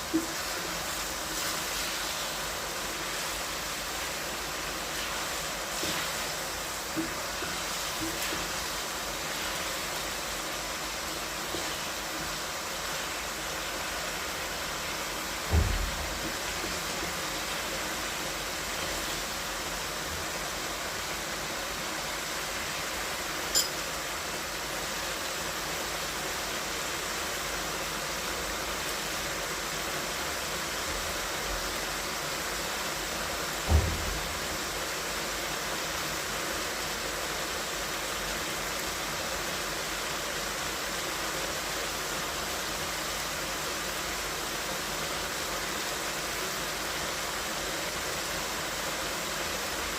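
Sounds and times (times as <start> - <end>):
steady hissing noise: 0.0 - 49.9
low thump: 15.5 - 16.2, 33.7 - 34.3.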